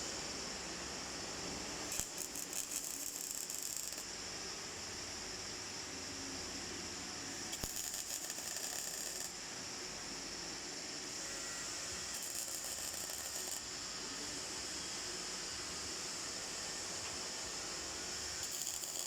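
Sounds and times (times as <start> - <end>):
steady hiss: 0.0 - 19.0
welding arc crackling: 1.9 - 4.0, 7.5 - 9.3, 12.2 - 13.7, 18.4 - 19.0.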